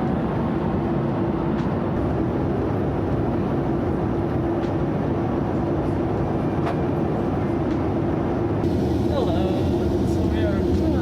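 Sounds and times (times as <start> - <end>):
airliner cabin roar: 0.0 - 11.0
low hum: 7.3 - 11.0.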